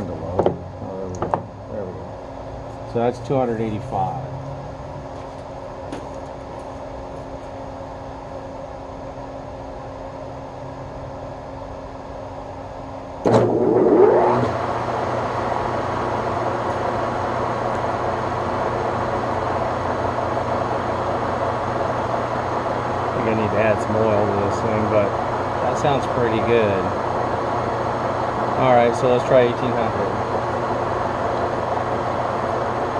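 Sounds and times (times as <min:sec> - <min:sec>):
steady hum: 0:00.0 - 0:32.9
lathe motor running: 0:13.2 - 0:32.9.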